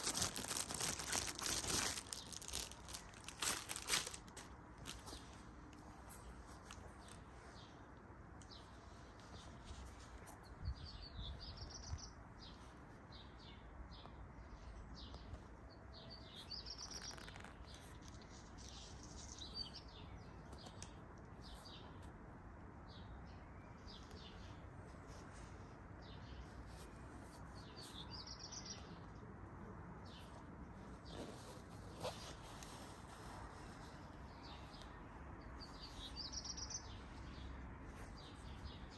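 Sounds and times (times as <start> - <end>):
handling clicks and rustles: 0.0 - 7.6, 30.1 - 35.0
faint bird chirps: 8.5 - 22.0.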